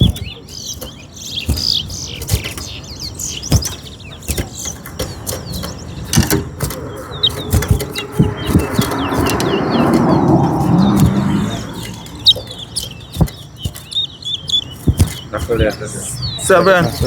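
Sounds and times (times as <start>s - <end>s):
finches chirping: 0.0s - 17.0s
sharp taps and knocks: 0.0s - 17.0s.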